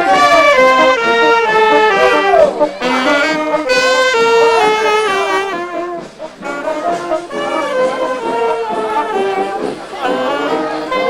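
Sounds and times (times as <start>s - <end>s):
brass band playing: 0.0s - 11.0s
trombones and trumpets melody: 0.0s - 11.0s.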